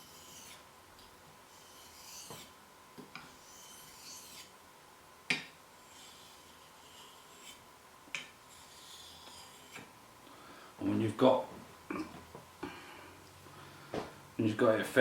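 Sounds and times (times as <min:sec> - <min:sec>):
knife scraping on whetstone: 0:00.0 - 0:00.6, 0:01.5 - 0:02.6, 0:03.2 - 0:04.6, 0:05.8 - 0:07.6, 0:08.2 - 0:09.9.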